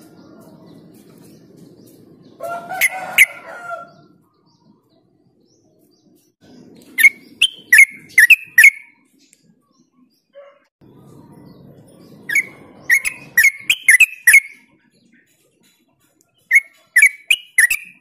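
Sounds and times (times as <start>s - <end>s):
bird singing sharp notes: 6.4s - 9.0s, 11.4s - 15.3s, 16.3s - 18.0s.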